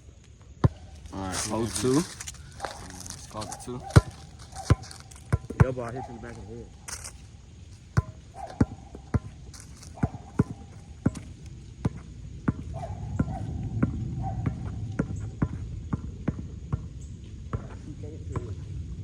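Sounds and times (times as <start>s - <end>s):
basketball bouncing on hard court: 3.4s - 16.9s, 17.5s - 17.8s.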